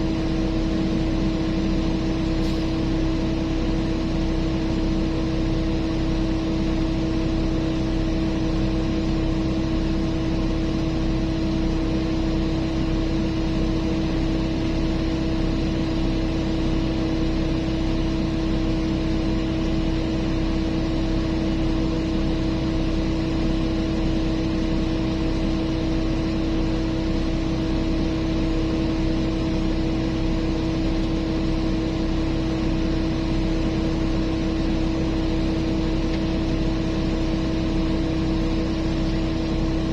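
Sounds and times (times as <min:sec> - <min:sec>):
diesel engine droning: 0:00.6 - 0:06.1.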